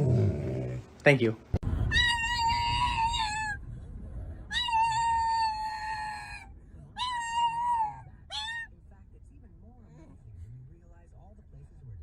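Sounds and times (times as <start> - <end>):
cat meowing: 7.0 - 8.7.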